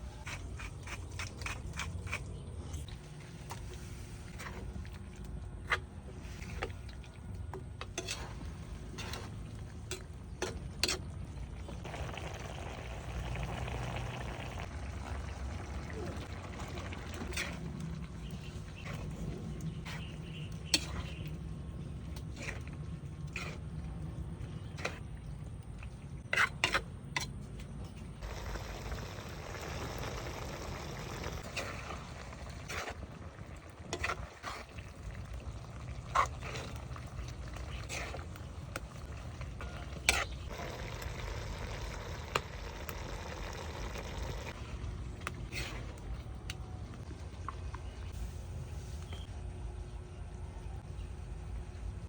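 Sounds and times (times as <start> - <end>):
frying sizzle in pan: 28.2 - 31.4.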